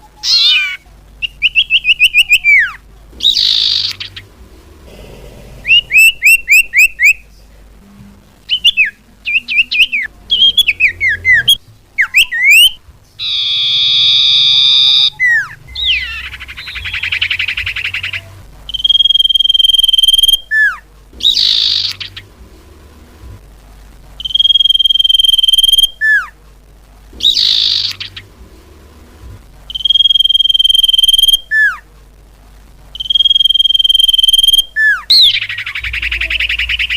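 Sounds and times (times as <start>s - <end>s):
bird whistling calls: 0.2s - 4.2s, 5.6s - 7.2s, 8.5s - 22.2s, 24.2s - 26.3s, 27.2s - 28.2s, 29.7s - 31.8s, 33.0s - 36.9s
buzzy bird trills: 0.2s - 7.2s, 8.5s - 22.4s, 27.2s - 28.5s, 29.7s - 31.8s, 33.0s - 36.9s.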